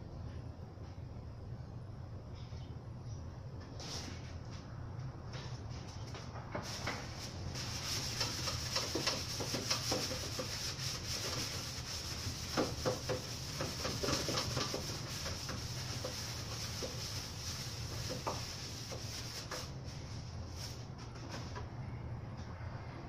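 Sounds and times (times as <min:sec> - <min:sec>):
scratchy rubbing and tapping: 0:07.6 - 0:19.7.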